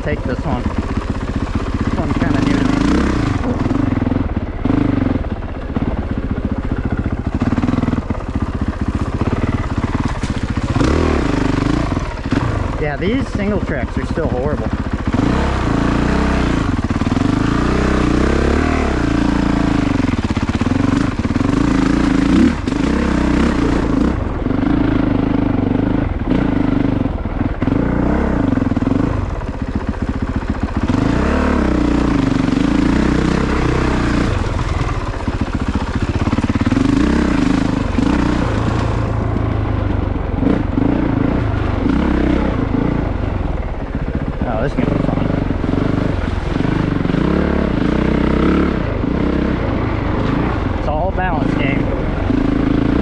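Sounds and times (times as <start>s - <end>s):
dirt bike engine revving: 0.0s - 53.0s
knocks and clatter from bike: 0.5s - 12.7s.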